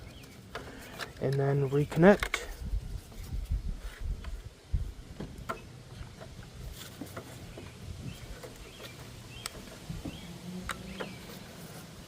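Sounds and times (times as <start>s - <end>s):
hands rustling with bulb wiring: 0.0s - 12.0s
low handling rumble: 2.6s - 11.6s.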